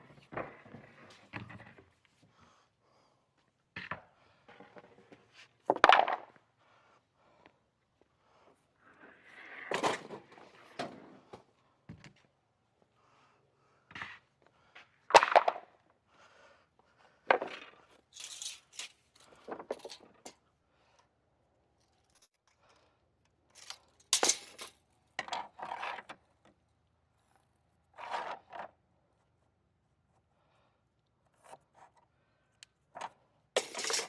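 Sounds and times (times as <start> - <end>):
scrapes and knocks from handwork: 17.3 - 20.4, 33.6 - 34.0.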